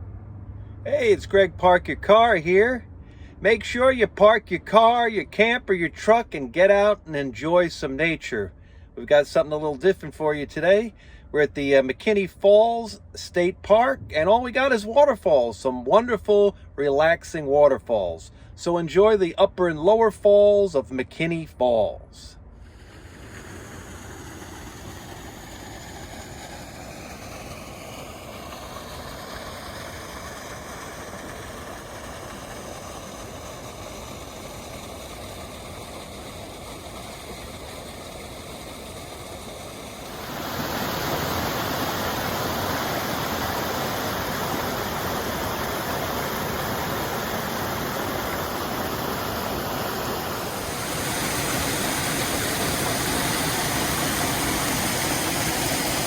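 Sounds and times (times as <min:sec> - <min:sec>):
waterfall rushing: 0:22.8 - 0:56.0.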